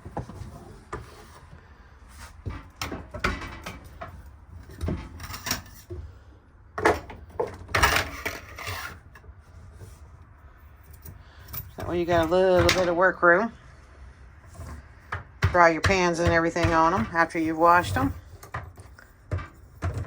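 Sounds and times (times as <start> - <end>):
sliding scrape: 7.8 - 10.2.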